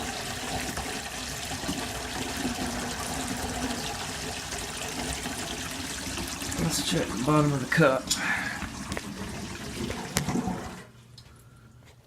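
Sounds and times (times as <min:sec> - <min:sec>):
faucet water running into sink: 0:00.0 - 0:10.9.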